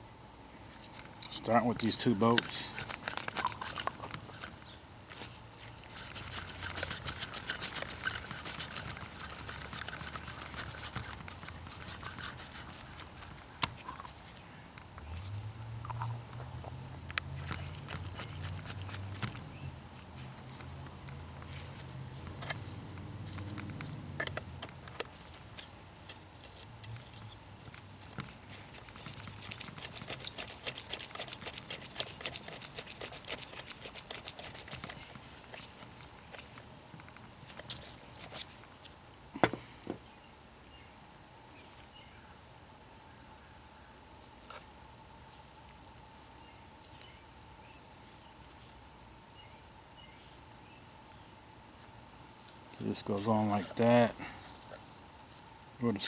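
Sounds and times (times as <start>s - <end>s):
hand tool rapid clicking: 5.9s - 13.0s.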